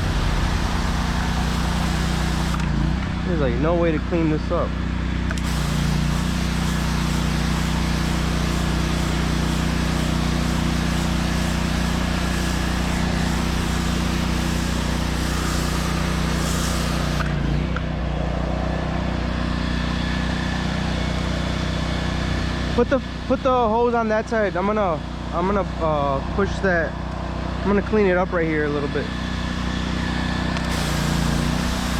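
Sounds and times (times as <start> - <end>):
water spray hissing on concrete: 0.0 - 2.7, 5.4 - 17.4, 29.8 - 31.9
pressure washer engine running: 0.0 - 31.9.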